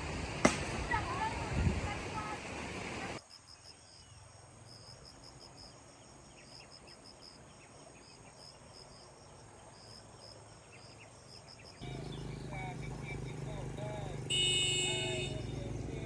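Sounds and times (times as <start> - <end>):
insects chirping: 3.2 - 16.0.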